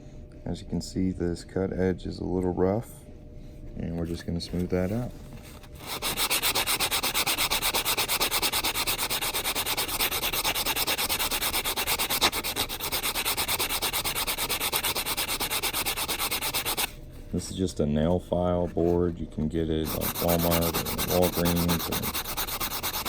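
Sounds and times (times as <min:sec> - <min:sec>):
nail file rubbing metal ring: 0:05.8 - 0:16.9, 0:19.9 - 0:23.0.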